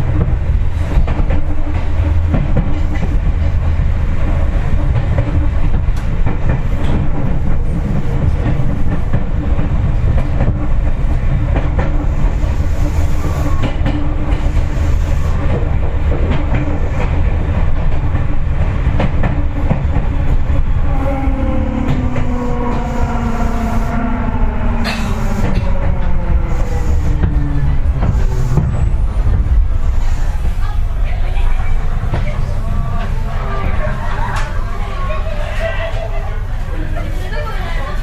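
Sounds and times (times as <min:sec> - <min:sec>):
rail-joint clicks: 0:00.0 - 0:37.7
train wheels rumbling on rail: 0:00.0 - 0:38.0
train motor whine: 0:19.2 - 0:35.6.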